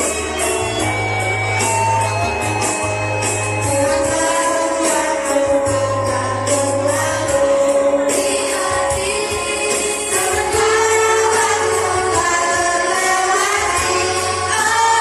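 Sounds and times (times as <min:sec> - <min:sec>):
musical accompaniment with low bass: 0:00.0 - 0:15.0
children's choir singing: 0:03.7 - 0:15.0.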